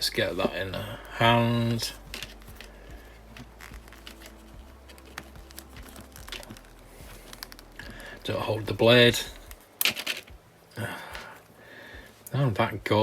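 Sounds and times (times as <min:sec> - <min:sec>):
plastic parts clicking: 0:01.3 - 0:08.4, 0:09.1 - 0:10.4.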